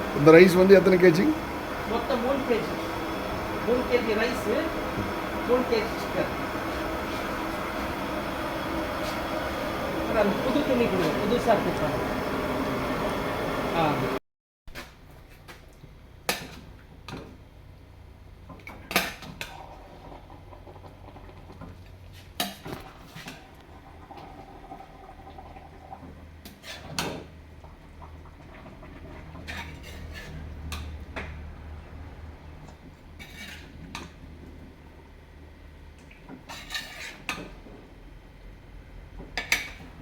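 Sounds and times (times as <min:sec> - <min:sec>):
metal pots and utensils clanking: 0:29.3 - 0:31.0, 0:36.4 - 0:37.6.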